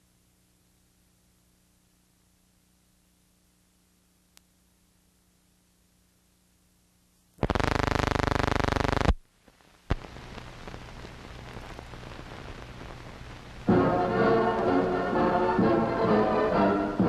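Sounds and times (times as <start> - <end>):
film soundtrack hiss and crackle: 0.0 - 17.0
loud buzzing tone: 7.4 - 9.2.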